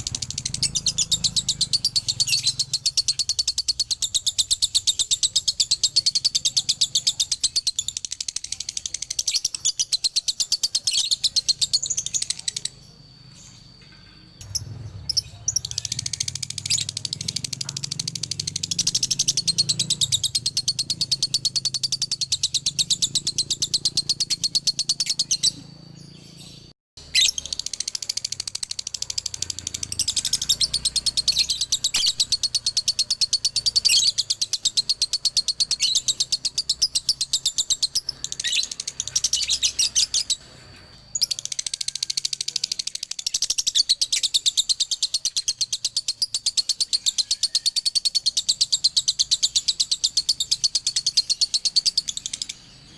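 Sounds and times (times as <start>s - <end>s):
lovebird rapid chirping chatter: 0.0s - 52.9s.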